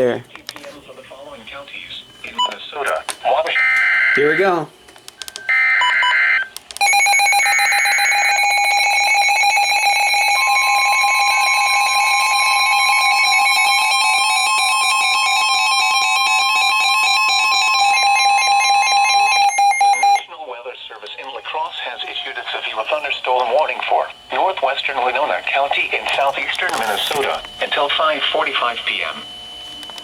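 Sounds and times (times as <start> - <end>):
steady warning tone: 0.0 - 30.0
alarm buzzing: 3.4 - 4.6, 5.4 - 20.4
warbling digital data tones: 5.3 - 14.2.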